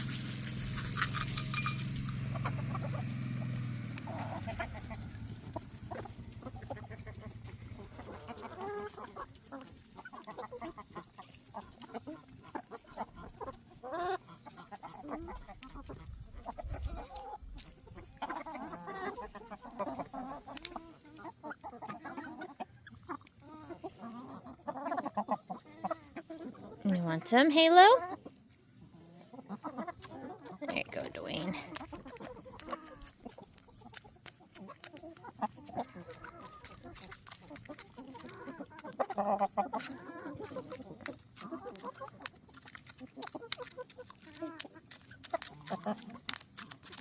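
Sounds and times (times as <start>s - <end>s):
rattle: 0.0s - 4.0s
chickens clucking: 0.0s - 47.0s.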